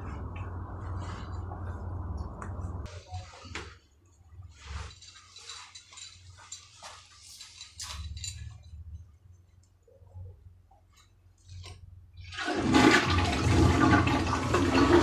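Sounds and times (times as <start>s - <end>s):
hard objects clinking and rattling: 4.8s - 9.7s.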